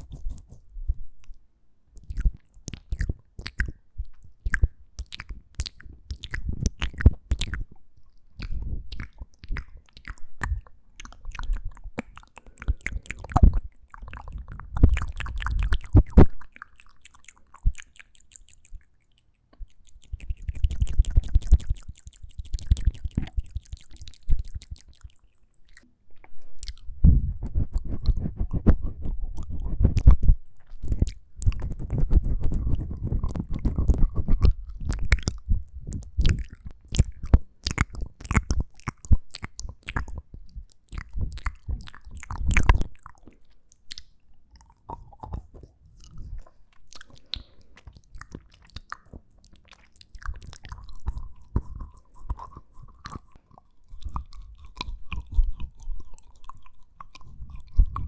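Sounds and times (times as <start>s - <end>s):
lip and tongue clicks: 0.0s - 58.0s.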